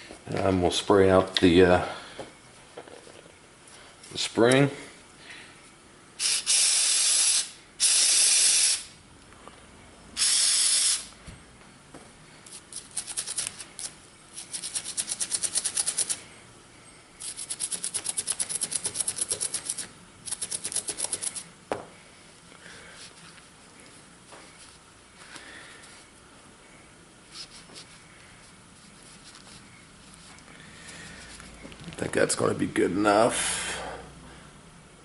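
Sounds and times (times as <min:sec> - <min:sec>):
aerosol spray hissing: 0:06.2 - 0:08.9, 0:10.2 - 0:11.1
scratchy rubbing strokes: 0:27.3 - 0:30.4.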